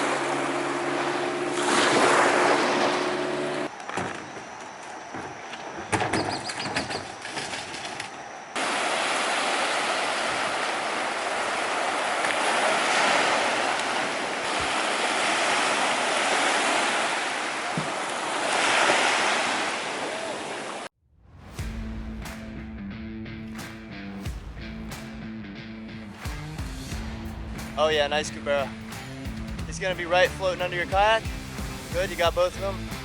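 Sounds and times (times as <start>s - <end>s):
sea water rushing: 0.0s - 3.8s, 7.1s - 20.9s.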